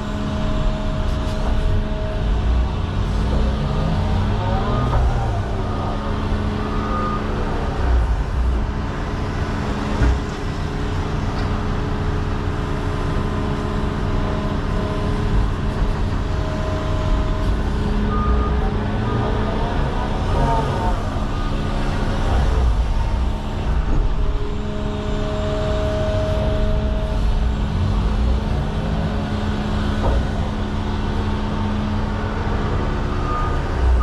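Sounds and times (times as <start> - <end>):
excavator diesel engine running: 0.0 - 34.0
hydraulic whines: 13.3 - 34.0.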